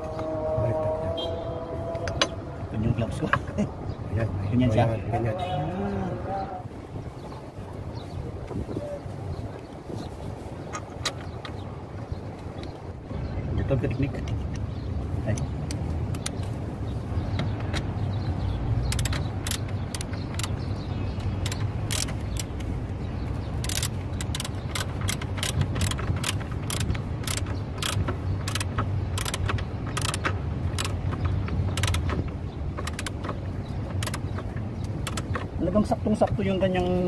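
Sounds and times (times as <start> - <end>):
metallic tool clicks: 18.8 - 20.6, 21.3 - 22.7, 23.6 - 32.2.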